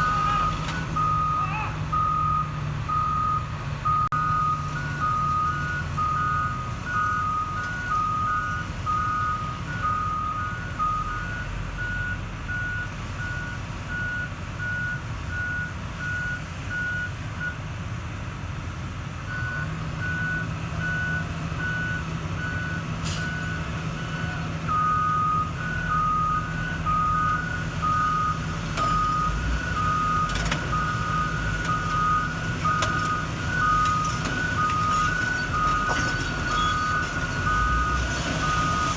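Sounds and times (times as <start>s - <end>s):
backup alarms beeping: 0.0s - 17.6s, 19.3s - 38.9s
diesel engines running: 0.0s - 38.9s.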